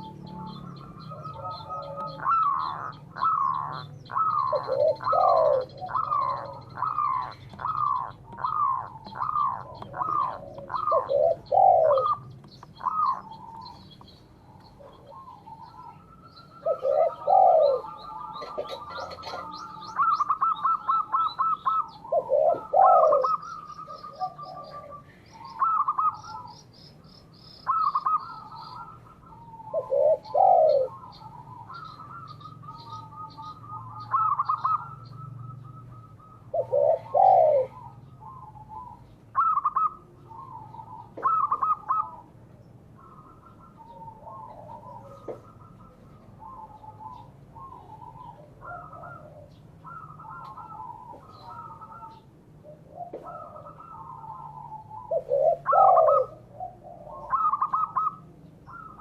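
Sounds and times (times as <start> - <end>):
doves cooing: 0.0 - 59.0
small birds chirping: 0.0 - 59.0.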